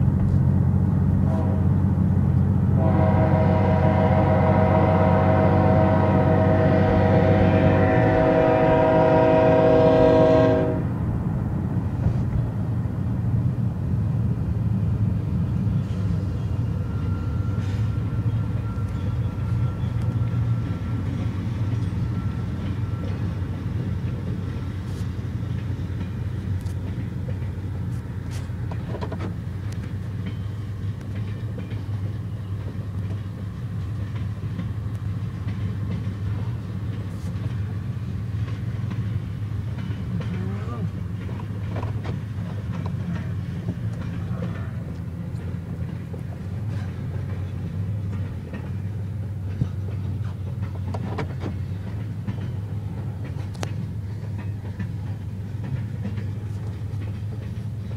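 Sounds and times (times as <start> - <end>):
large vehicle rumbling: 0.0 - 30.2
loud multi-note horn: 2.8 - 10.9.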